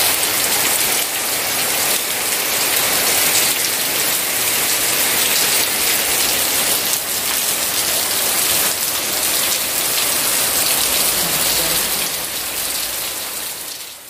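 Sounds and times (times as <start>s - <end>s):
heavy rain on pavement: 0.0s - 14.0s.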